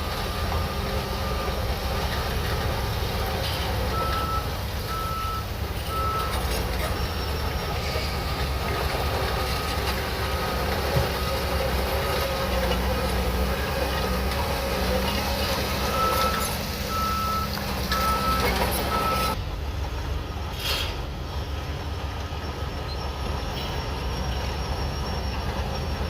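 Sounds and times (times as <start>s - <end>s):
bulldozer diesel engine running: 0.0s - 26.0s
reversing alarm beeps: 3.9s - 12.5s, 13.4s - 19.4s, 22.3s - 26.0s.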